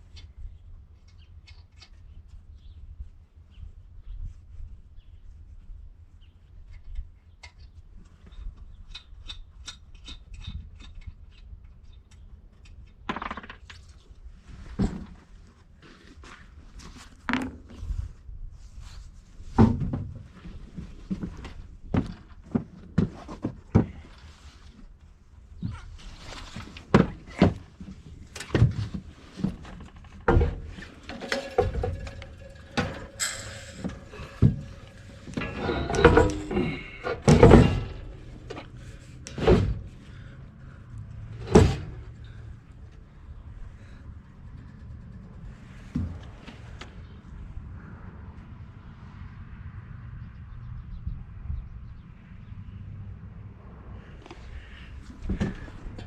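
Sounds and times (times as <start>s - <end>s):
rasping scrape: 30.3s - 39.9s
metal ringing: 30.4s - 38.7s
hand tools clicking and clinking: 30.8s - 38.7s.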